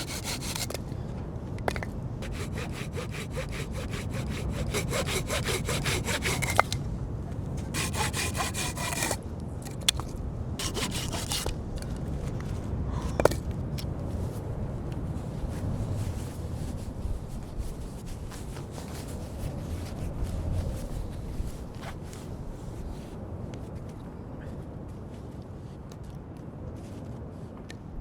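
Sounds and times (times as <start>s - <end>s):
hand saw cutting wood: 0.0s - 0.8s, 1.7s - 6.8s, 7.7s - 9.2s, 10.6s - 11.6s.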